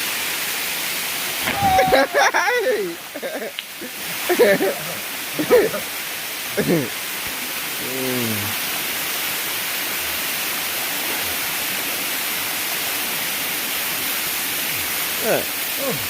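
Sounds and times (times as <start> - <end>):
waterfall rushing: 0.0 - 16.0
brief vocal sound: 7.8 - 8.5.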